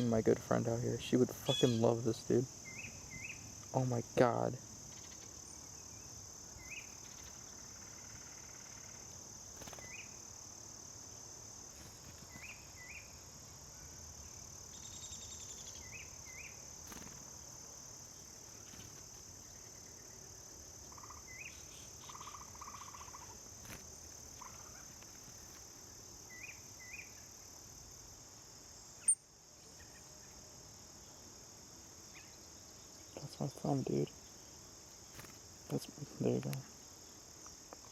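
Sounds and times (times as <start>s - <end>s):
crickets chirping: 0.0s - 37.9s
bird chirps: 1.4s - 2.0s, 2.6s - 3.5s.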